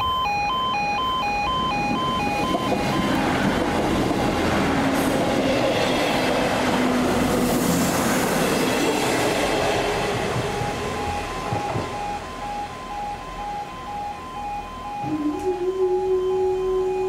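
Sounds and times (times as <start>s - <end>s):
two-tone crossing alarm: 0.0s - 6.3s, 9.8s - 17.0s
diesel train passing: 0.0s - 17.0s.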